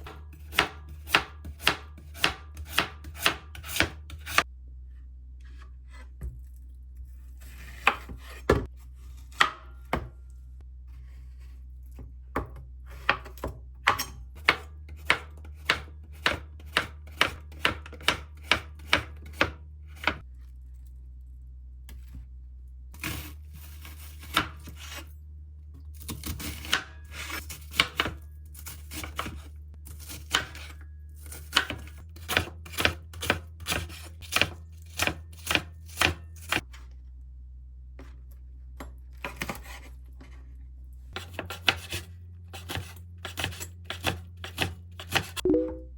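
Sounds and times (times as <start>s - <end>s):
knife chopping on cutting board: 0.0s - 4.4s, 7.8s - 8.7s, 9.3s - 10.2s, 12.4s - 20.2s, 26.0s - 30.7s, 31.4s - 36.6s, 41.2s - 45.5s.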